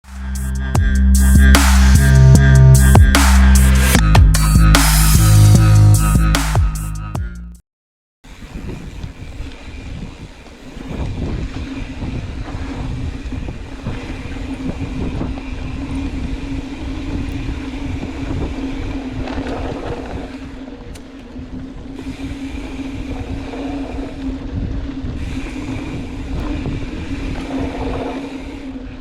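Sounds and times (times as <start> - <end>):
steady buzz: 0.0 - 7.5, 8.3 - 29.0
wind buffeting microphone: 8.3 - 29.0
tyres rattling over dirt: 11.2 - 29.0.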